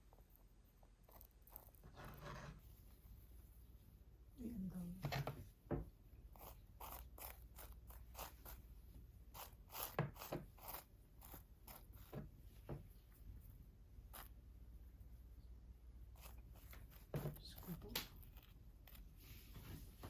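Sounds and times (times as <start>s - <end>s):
faint crunching and scraping: 0.0s - 3.8s, 16.0s - 20.0s.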